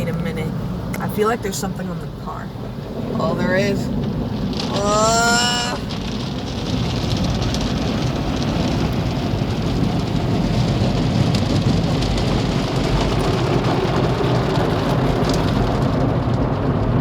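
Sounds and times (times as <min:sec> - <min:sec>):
car wash spray and brushes: 0:00.0 - 0:17.0.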